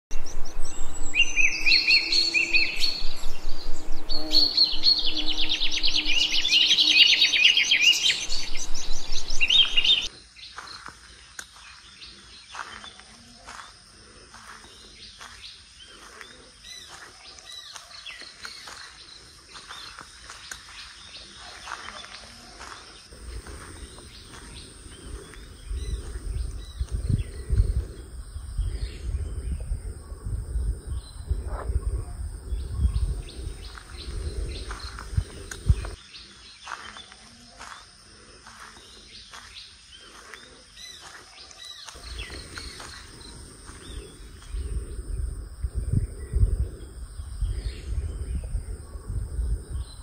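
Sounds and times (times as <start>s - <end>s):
birds chirping and trilling: 0.1s - 50.0s
high-pitched whine: 0.2s - 10.1s.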